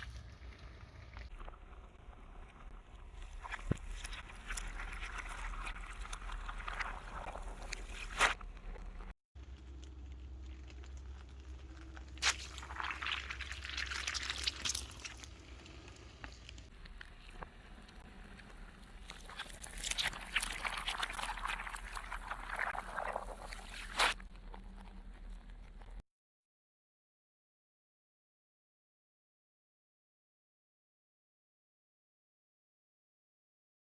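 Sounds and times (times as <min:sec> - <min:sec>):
liquid hissing and sloshing: 0:12.0 - 0:16.7.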